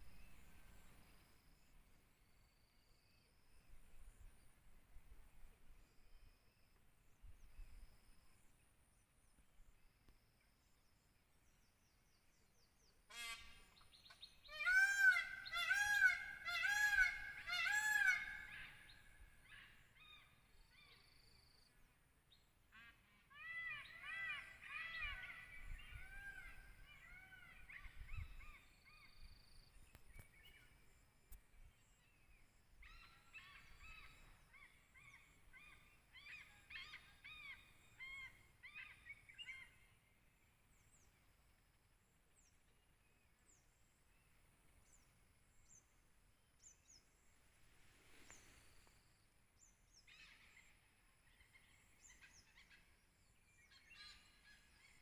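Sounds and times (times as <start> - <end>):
bird calling: 13.1 - 21.1, 22.7 - 30.7.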